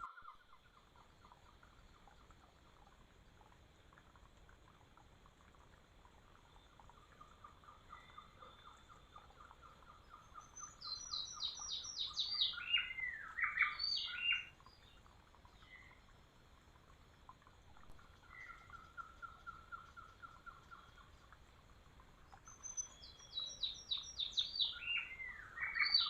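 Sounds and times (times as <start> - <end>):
bird singing: 6.5 - 16.0, 18.0 - 21.3, 22.3 - 26.0.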